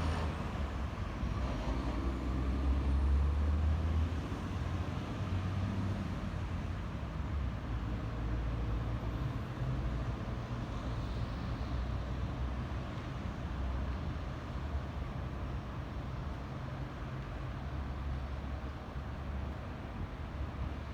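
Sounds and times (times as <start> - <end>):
road traffic noise: 0.0 - 3.8.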